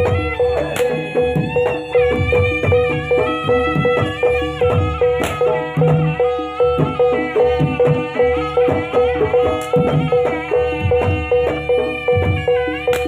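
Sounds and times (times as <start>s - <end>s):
hand drums: 0.0s - 13.0s
pitched percussion note: 0.0s - 13.0s
reedy wind melody: 0.0s - 13.0s.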